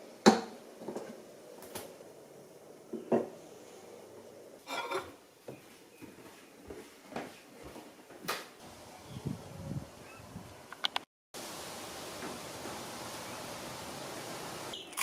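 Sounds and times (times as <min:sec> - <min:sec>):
dishes and cutlery clinking: 0:04.6 - 0:05.2.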